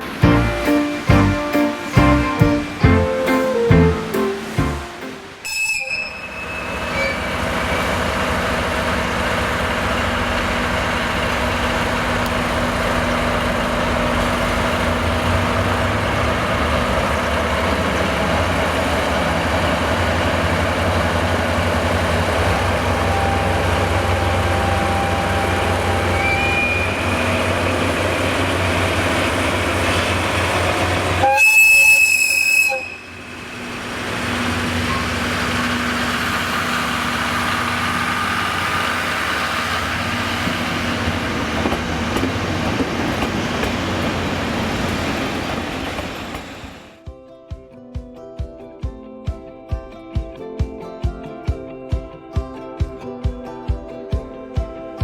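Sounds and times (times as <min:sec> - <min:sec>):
diesel train engine rumble: 0:00.0 - 0:05.5, 0:06.2 - 0:47.0
rail noise: 0:00.0 - 0:47.0
train horn blast: 0:00.2 - 0:07.4, 0:22.2 - 0:27.8, 0:30.5 - 0:33.7.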